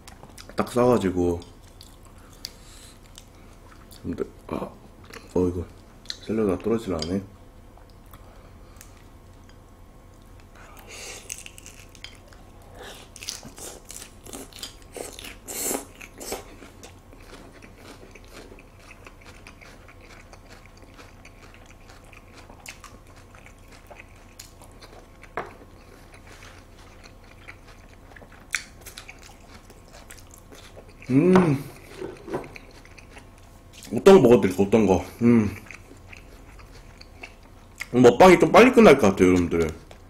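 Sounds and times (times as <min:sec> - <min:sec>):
lettuce crunching while chewing: 0:10.6 - 0:34.0, 0:35.5 - 0:38.0.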